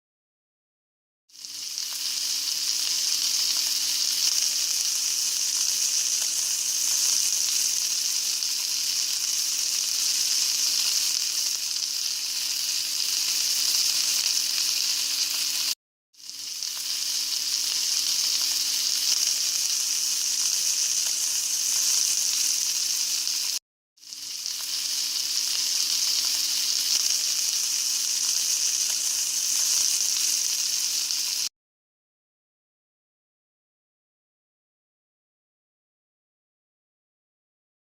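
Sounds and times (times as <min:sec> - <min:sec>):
steak sizzling on a grill: 0:01.4 - 0:31.5.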